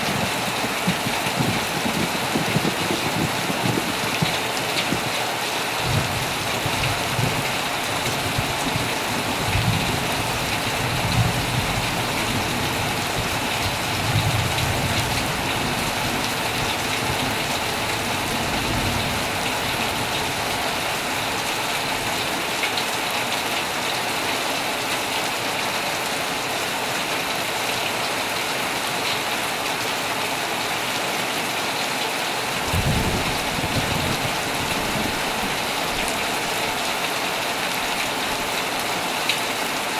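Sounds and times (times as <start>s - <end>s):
low rumbles of thunder: 0.0s - 5.2s, 5.8s - 21.7s, 32.6s - 37.0s
heavy rain on a tent: 0.0s - 39.9s.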